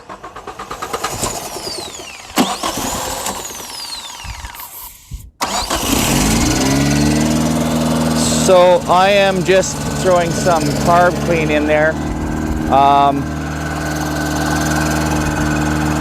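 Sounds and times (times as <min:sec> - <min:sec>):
car engine cranking on starter: 0:00.0 - 0:16.0
car engine running: 0:05.8 - 0:16.0.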